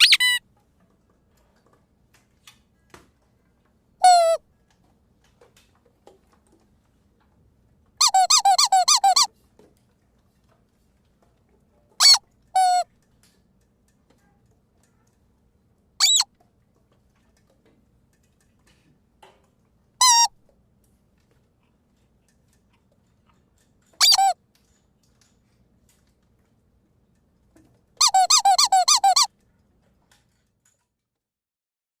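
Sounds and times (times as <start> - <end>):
squeaky dog toy squeaking: 0.0 - 0.4, 4.0 - 4.4, 8.0 - 9.3, 12.0 - 12.9, 16.0 - 16.3, 20.0 - 20.4, 23.9 - 24.4, 28.0 - 29.3.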